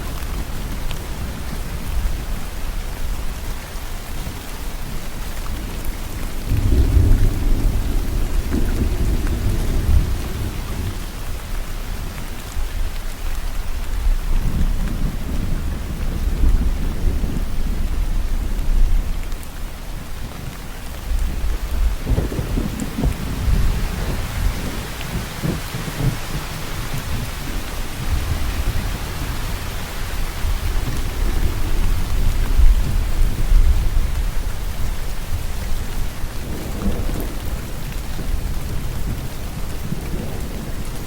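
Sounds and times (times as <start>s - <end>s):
rain falling: 0.0s - 41.0s
thunder rumbling: 5.5s - 12.8s, 13.8s - 41.0s.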